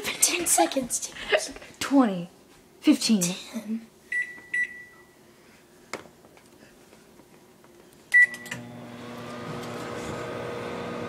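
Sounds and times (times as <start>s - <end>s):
keypad beep: 4.1s - 5.0s
microwave oven click: 8.2s - 9.9s
microwave oven humming: 8.2s - 11.0s.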